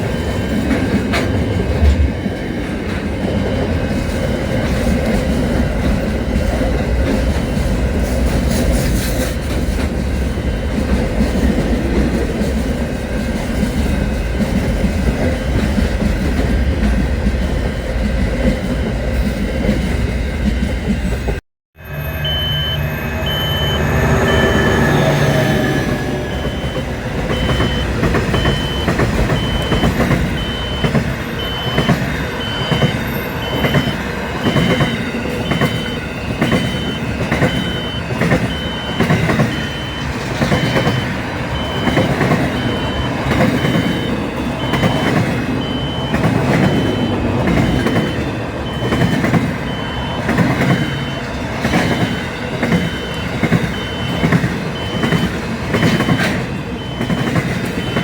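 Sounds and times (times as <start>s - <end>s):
train clattering past: 0.0s - 58.0s
high electronic beep: 21.8s - 58.0s.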